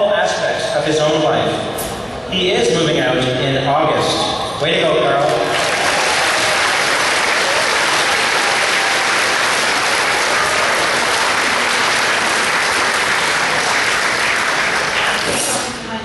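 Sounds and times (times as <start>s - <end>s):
audience applauding: 5.3s - 15.7s.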